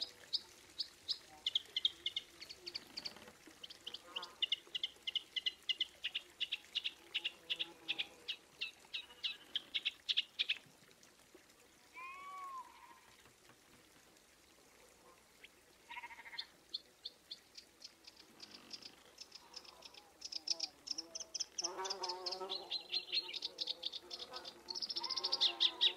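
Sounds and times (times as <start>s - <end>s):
rising-and-falling animal call: 11.9s - 13.1s.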